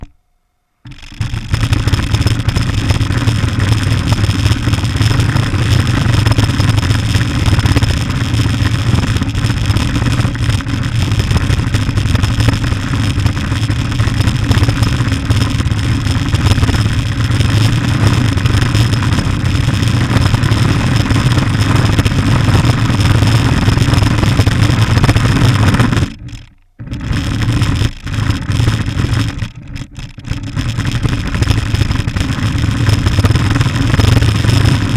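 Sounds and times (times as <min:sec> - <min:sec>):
faint high whine: 0:00.0 - 0:08.0
radio-controlled car motor rumble: 0:00.8 - 0:34.9.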